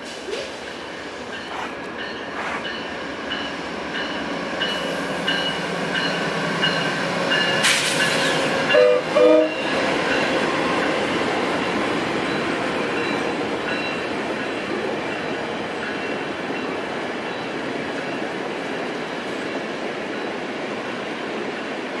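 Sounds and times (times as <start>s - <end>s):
train wheels rumbling on rail: 0.0s - 22.0s
train horn notes: 8.6s - 9.7s.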